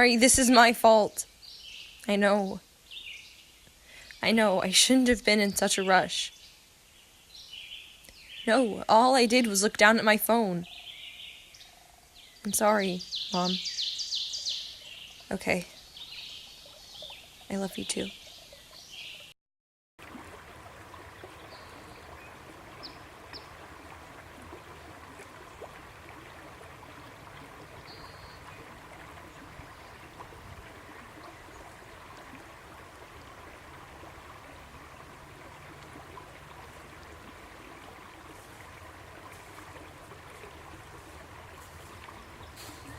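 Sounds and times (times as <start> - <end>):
faint steady hum: 20.0 - 42.9.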